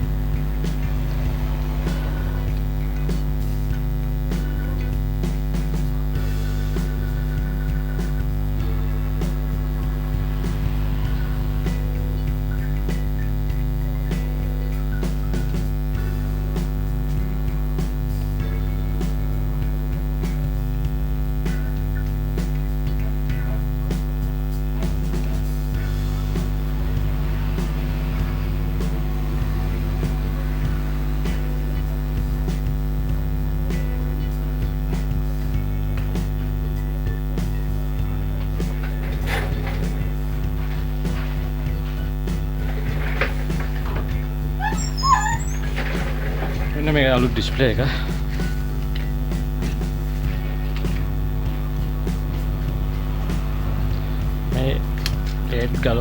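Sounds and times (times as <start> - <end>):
electrical mains hum: 0.0 - 56.0
faint clicks: 47.9 - 55.7.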